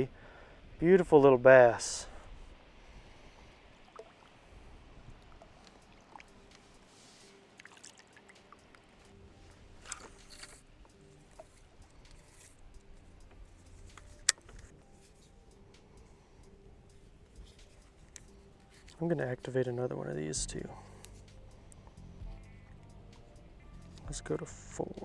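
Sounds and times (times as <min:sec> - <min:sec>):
faint water lapping: 0:02.0 - 0:19.9.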